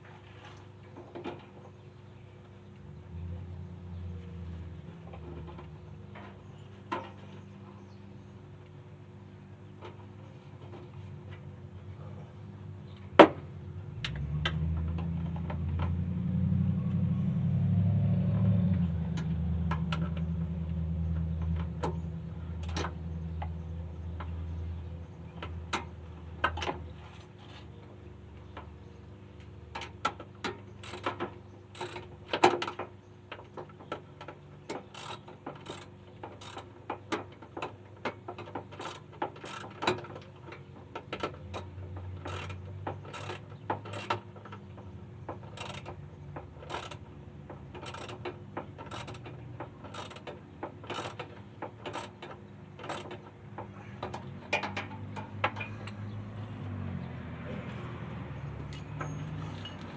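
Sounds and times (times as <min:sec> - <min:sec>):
hand tools clicking on metal: 0:33.4 - 0:44.7, 0:45.3 - 0:56.7, 0:57.4 - 0:59.9.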